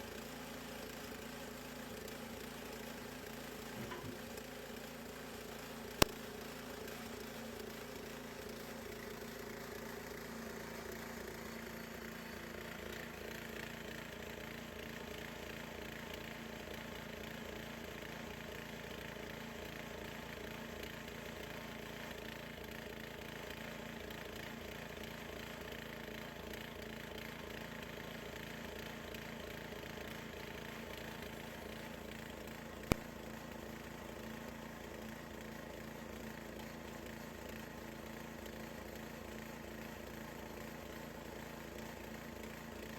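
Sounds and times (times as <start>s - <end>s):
band sawmill sawing log: 0.0s - 42.9s.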